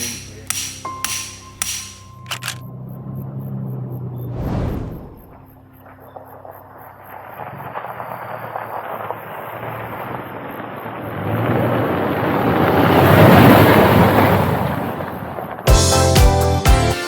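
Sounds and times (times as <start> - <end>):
music: 0.0 - 2.3, 15.7 - 17.0
wind rushing over microphone: 4.2 - 5.5.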